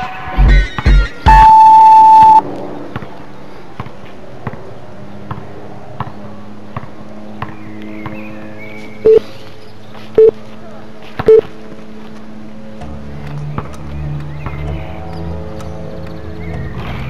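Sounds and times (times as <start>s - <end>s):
long electronic beep: 1.2s - 2.4s, 9.0s - 9.2s.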